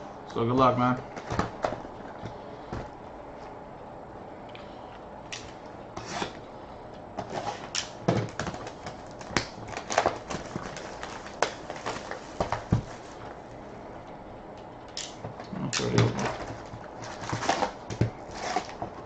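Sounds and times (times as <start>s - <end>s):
cardboard and plastic wrapping rustling: 7.2s - 13.5s, 15.2s - 19.0s.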